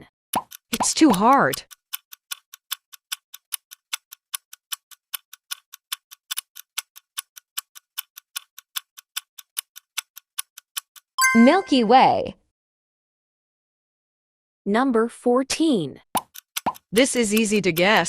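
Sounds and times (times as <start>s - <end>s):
clock ticking rapidly: 0.4s - 11.2s, 16.2s - 18.0s.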